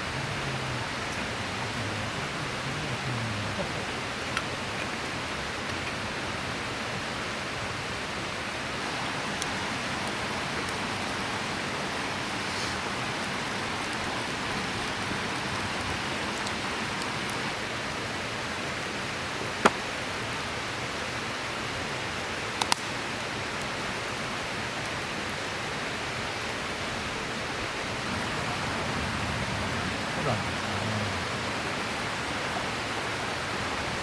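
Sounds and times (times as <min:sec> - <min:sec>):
river rushing: 0:00.0 - 0:34.0
sharp snap: 0:22.6 - 0:23.0.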